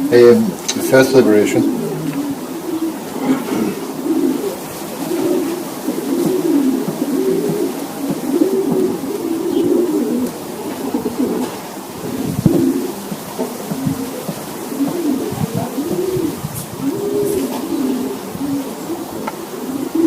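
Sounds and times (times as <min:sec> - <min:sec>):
pigeons cooing: 0:00.0 - 0:20.0
knocks: 0:12.5 - 0:15.6.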